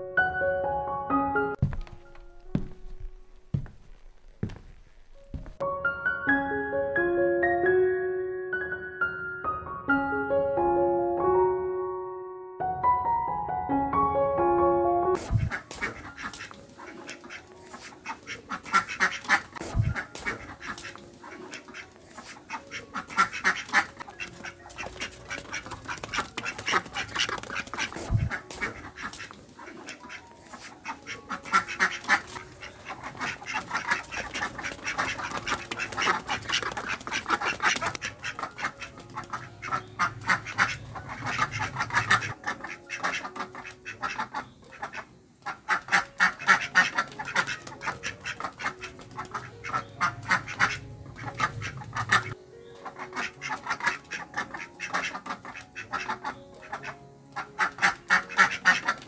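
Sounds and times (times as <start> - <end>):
ducks quacking: 15.2 - 59.0.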